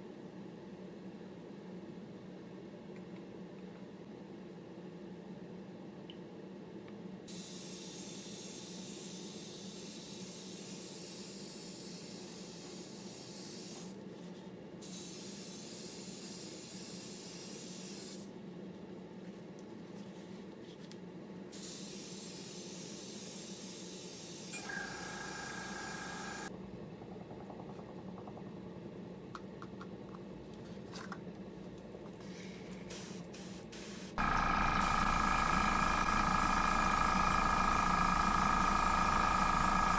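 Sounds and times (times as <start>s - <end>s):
spray paint hissing: 7.3s - 13.9s, 14.8s - 18.3s, 21.5s - 26.5s, 32.9s - 39.9s.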